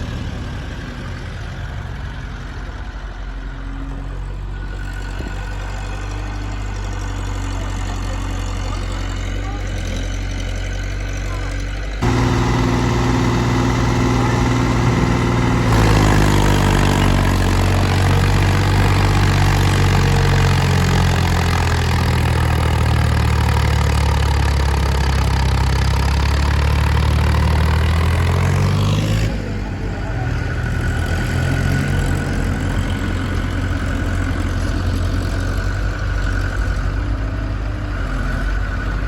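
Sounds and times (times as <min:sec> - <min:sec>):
heavy diesel engine running: 0:00.0 - 0:39.0.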